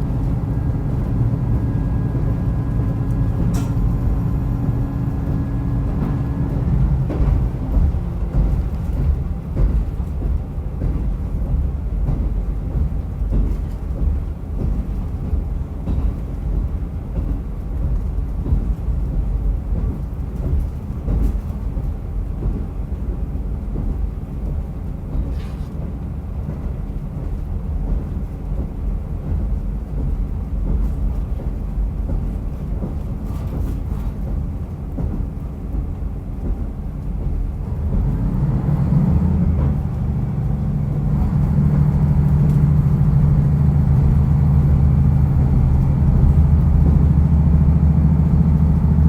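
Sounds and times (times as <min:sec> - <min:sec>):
railcar rumbling on rails: 0:00.0 - 0:49.0.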